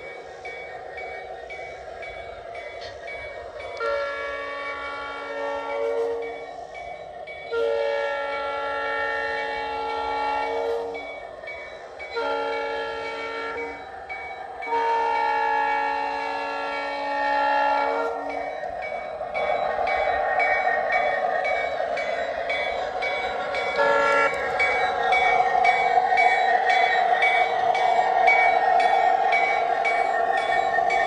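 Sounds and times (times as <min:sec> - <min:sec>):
train running noise: 0:00.0 - 0:31.0
locomotive horn blasts: 0:03.8 - 0:06.3, 0:07.5 - 0:11.0, 0:12.1 - 0:13.8, 0:14.6 - 0:18.4, 0:23.8 - 0:24.5.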